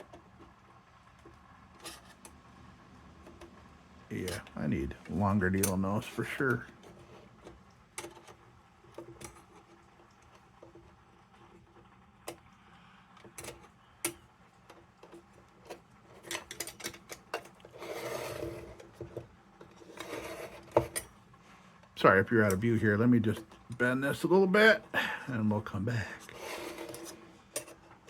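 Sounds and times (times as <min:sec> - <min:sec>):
metal rubbing and scraping: 0:16.1 - 0:21.1, 0:26.2 - 0:28.0.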